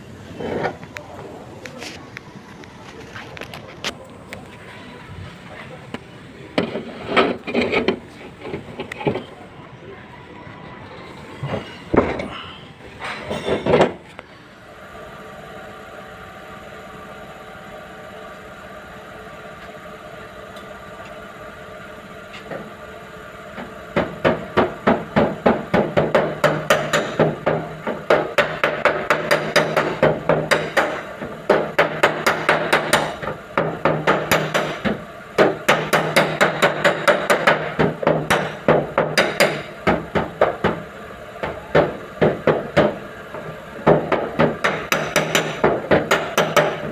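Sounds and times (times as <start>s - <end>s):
hammer on sheet metal: 24.0s - 40.6s, 43.8s - 46.9s.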